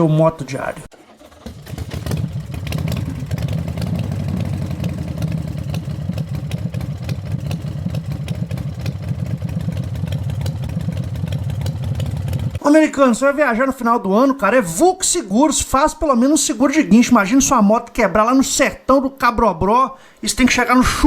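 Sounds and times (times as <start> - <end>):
motorcycle engine idling: 1.0 - 12.6.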